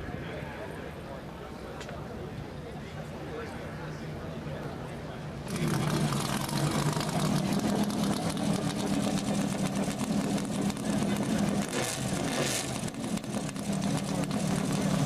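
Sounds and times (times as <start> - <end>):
engine idling: 5.5 - 15.0.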